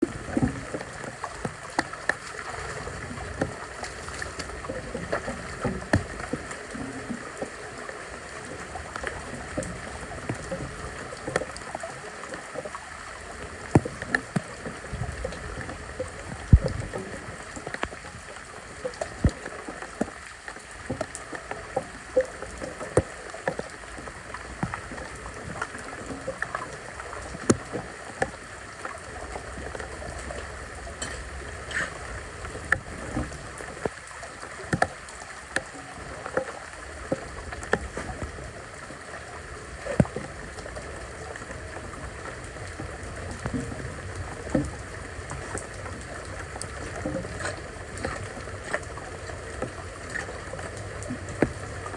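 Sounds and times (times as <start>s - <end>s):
floodwater running and gurgling: 0.0s - 51.9s
knocks and scrapes: 31.0s - 32.0s.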